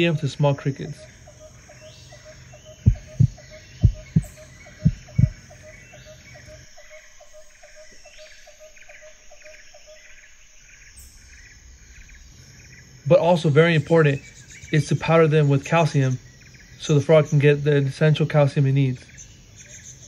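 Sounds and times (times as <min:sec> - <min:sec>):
crickets chirping: 0:00.0 - 0:20.0
loud low thumps: 0:02.8 - 0:05.4.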